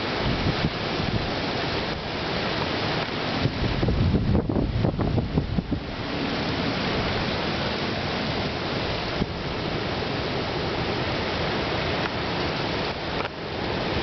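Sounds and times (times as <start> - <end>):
strong wind rushing: 0.0 - 14.0.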